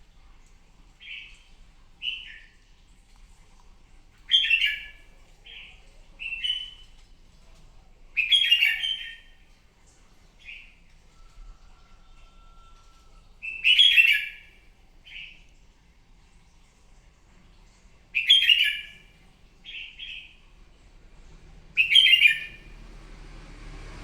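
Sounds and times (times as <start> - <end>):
bird whistled song phrases: 4.3 - 6.9, 8.2 - 9.4, 13.4 - 14.5, 18.2 - 19.0, 21.8 - 22.7.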